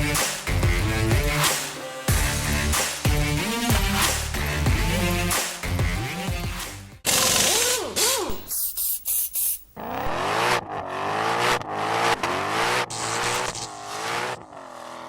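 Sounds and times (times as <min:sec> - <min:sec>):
short hissing bursts: 0:08.4 - 0:09.7
car engine revving: 0:09.8 - 0:15.0.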